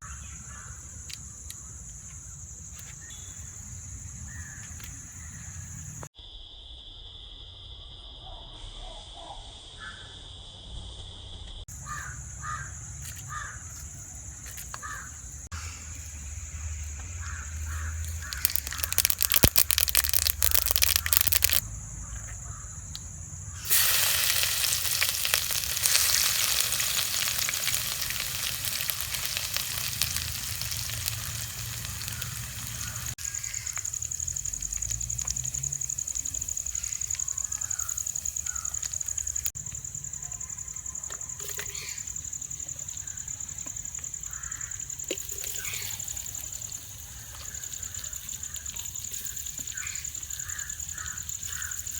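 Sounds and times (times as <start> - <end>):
oil crackling sputter: 15.6 - 21.7, 22.9 - 39.6
food sizzling in hot oil: 17.2 - 21.6, 23.6 - 39.6, 44.0 - 51.9.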